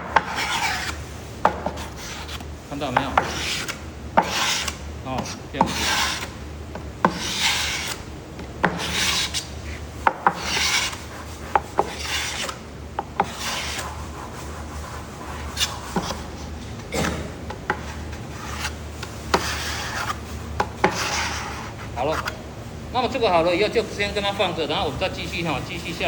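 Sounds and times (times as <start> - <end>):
spreader scraping on wood: 0.2 - 1.0, 1.6 - 6.4, 7.0 - 8.1, 8.7 - 12.6, 13.2 - 16.6, 17.7 - 22.4.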